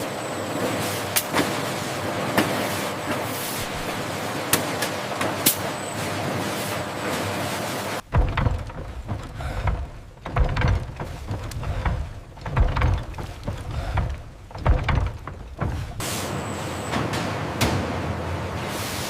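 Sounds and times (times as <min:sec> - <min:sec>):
steady mechanical noise: 0:00.0 - 0:19.0
heavy machinery thuds and clunks: 0:08.0 - 0:16.1.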